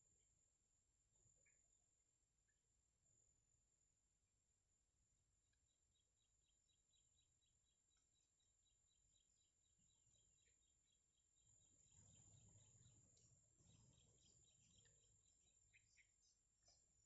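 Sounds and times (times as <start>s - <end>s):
faint high bird chirping: 1.1s - 3.7s, 5.4s - 17.0s
steady high-pitched hum: 8.6s - 17.0s.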